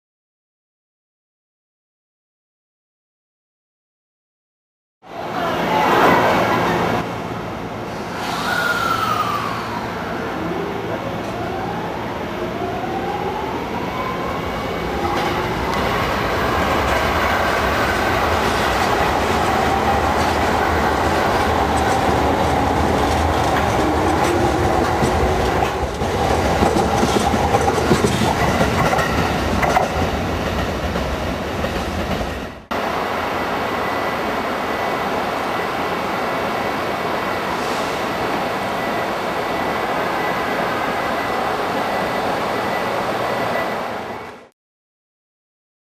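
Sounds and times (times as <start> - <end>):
train wheels on rails: 14.4 - 44.5.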